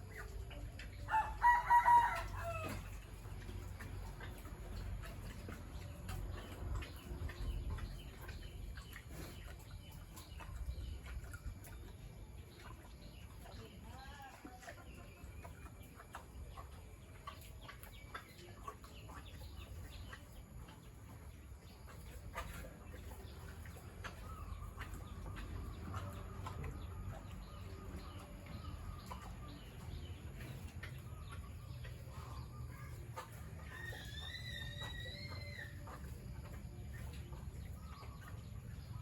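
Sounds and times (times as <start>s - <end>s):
chickens clucking: 0.0s - 39.0s
steady low rumble: 2.3s - 13.9s, 14.9s - 33.7s.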